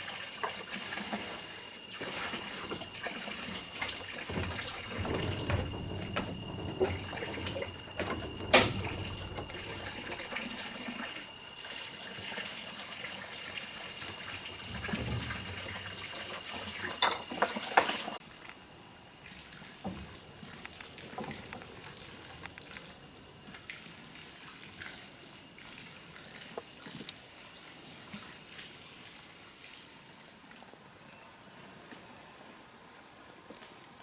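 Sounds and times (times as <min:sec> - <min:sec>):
water splashing and sloshing: 0:00.9 - 0:11.4.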